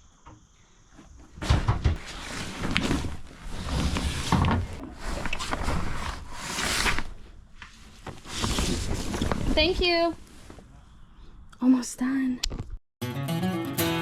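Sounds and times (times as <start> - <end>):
soft knocks and thumps: 1.0 - 3.0
cushions rustling and rubbing: 1.9 - 10.7.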